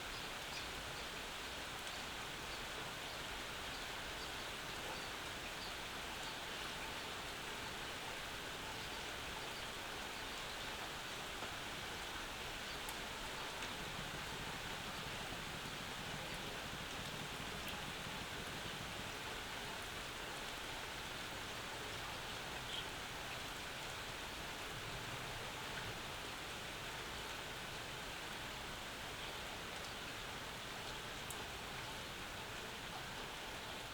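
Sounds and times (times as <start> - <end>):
rain on yard and roof: 0.3 - 33.9
raindrops ticking close by: 9.4 - 33.9.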